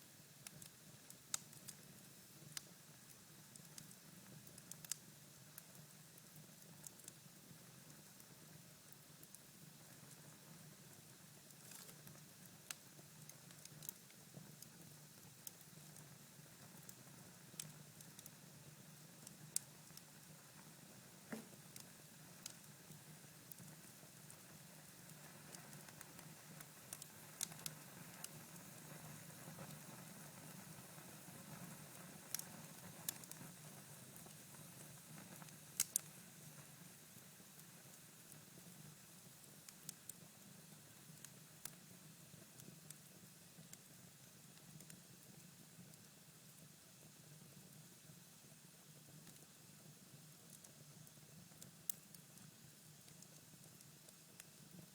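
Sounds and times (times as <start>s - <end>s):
fire crackling and popping: 0.4s - 36.6s, 50.5s - 52.5s.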